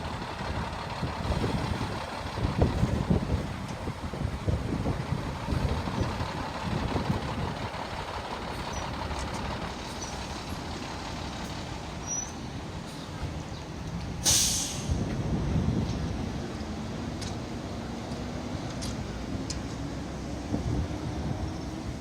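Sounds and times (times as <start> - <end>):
vehicle engine low rumble: 0.0 - 22.0
loud short hiss: 14.2 - 15.0.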